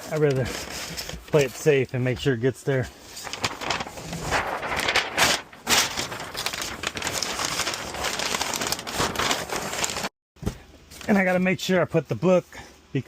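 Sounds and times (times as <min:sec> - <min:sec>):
paper being crumpled: 0:03.1 - 0:10.1.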